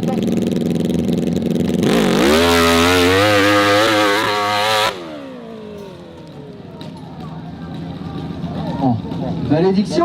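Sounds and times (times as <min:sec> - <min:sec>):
motorcycle engine revving and winding down: 0:00.0 - 0:07.0.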